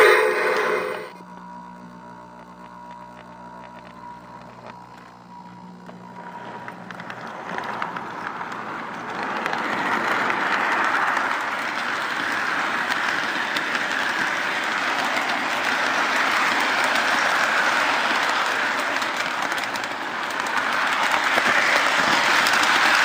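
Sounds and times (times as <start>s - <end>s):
model train rolling on track: 0.0s - 1.2s, 5.8s - 23.0s.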